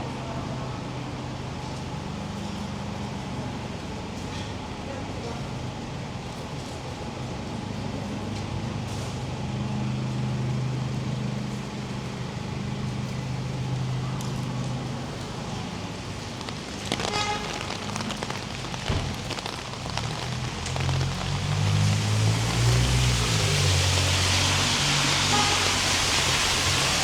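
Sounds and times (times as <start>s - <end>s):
rain hiss: 5.9s - 27.0s
low engine hum: 9.1s - 27.0s.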